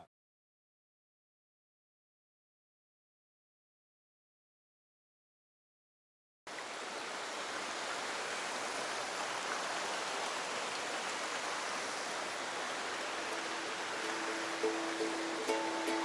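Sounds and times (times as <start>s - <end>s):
mountain stream rushing: 6.5s - 16.0s.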